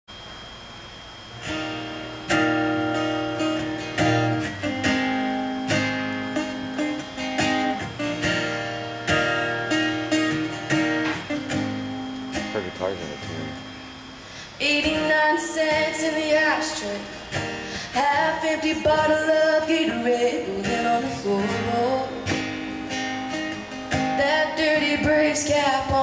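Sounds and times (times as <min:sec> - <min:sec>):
guitar chords ringing: 0:00.6 - 0:26.0.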